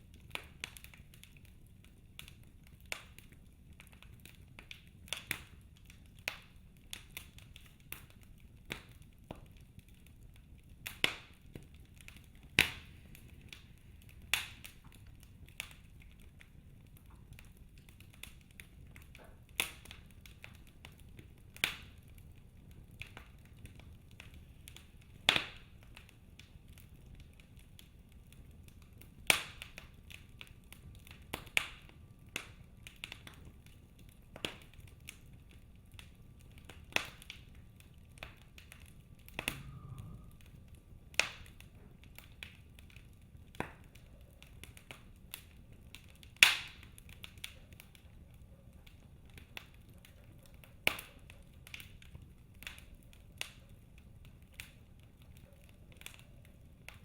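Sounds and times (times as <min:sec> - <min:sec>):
wood fire crackling: 0:00.0 - 0:57.0
faint low rumble: 0:29.9 - 0:46.0.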